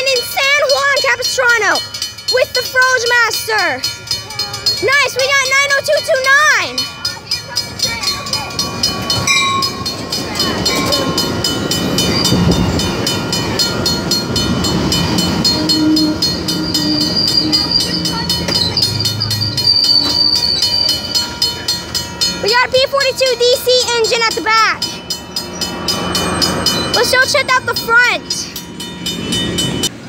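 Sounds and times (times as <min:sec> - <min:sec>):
train rumble: 0:00.0 - 0:30.0
train wheels clicking over rail joints: 0:00.1 - 0:29.9
high wheel squeal: 0:15.0 - 0:21.3.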